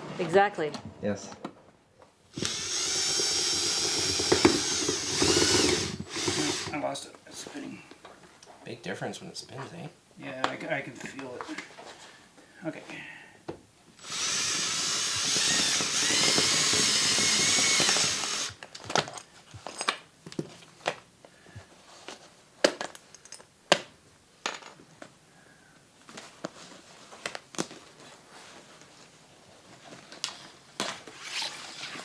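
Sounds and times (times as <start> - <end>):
sewing machine motor whine: 2.4 - 6.7.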